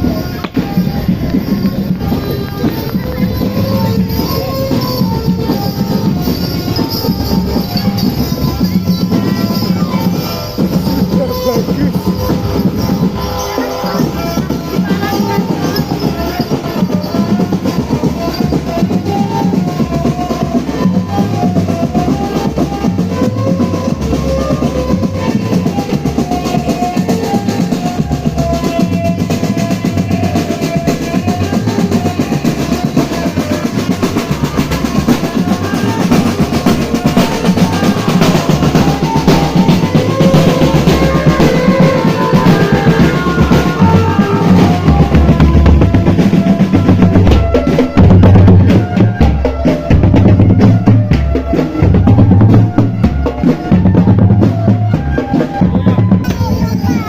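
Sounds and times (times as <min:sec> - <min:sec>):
marching band melody: 0:00.0 - 0:57.0
snare drum rolls: 0:16.5 - 0:57.0.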